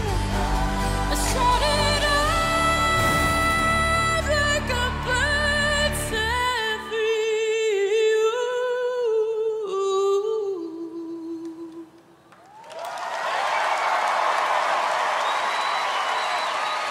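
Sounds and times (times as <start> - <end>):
audience applause and cheering: 0.0 - 5.6, 12.3 - 16.9.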